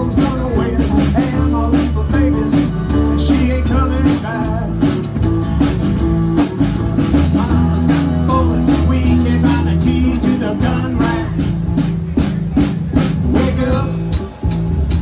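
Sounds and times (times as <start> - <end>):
bass guitar: 0.0 - 15.0
drum kit beat: 0.0 - 15.0
electric guitar: 0.0 - 15.0.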